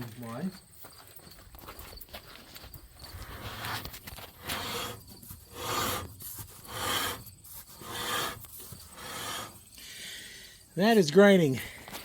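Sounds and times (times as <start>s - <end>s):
brake grinding metal on metal: 3.1s - 9.7s.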